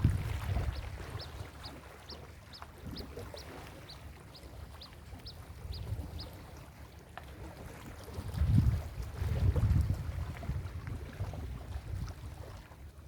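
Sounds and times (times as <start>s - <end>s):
ocean surf washing: 0.0s - 6.8s
wind buffeting microphone: 0.0s - 13.0s.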